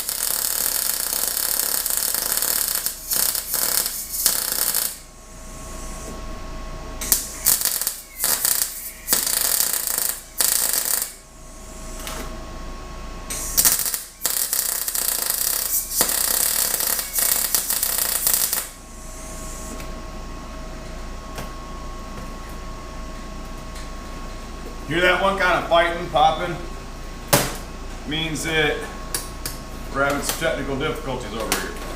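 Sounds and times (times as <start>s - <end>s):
arc welder crackling and popping: 0.0s - 5.1s, 7.0s - 11.3s, 13.3s - 18.8s.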